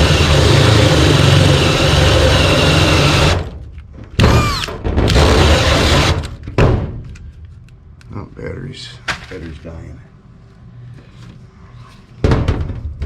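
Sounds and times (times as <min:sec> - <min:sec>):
cordless drill boring sheet metal: 0:00.0 - 0:03.4, 0:04.3 - 0:06.1.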